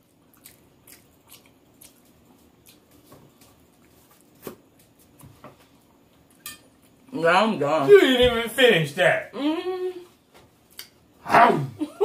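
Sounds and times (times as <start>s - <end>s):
person chewing: 0.0s - 5.2s.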